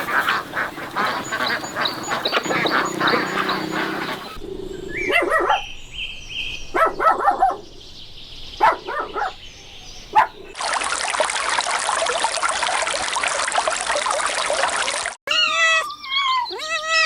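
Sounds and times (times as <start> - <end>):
running water rushing: 0.0 - 4.4, 10.6 - 15.2
dog barking: 1.1 - 4.4, 5.1 - 5.7, 6.7 - 7.6, 8.6 - 9.4, 10.1 - 10.4.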